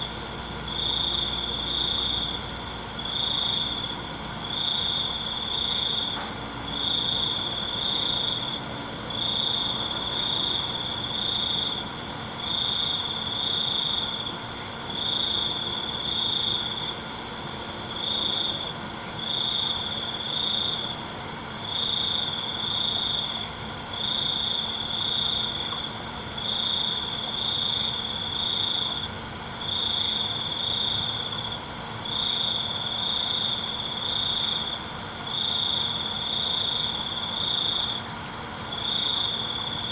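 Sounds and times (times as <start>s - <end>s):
high-pitched insect drone: 0.0s - 29.0s
crickets trilling: 0.0s - 39.9s.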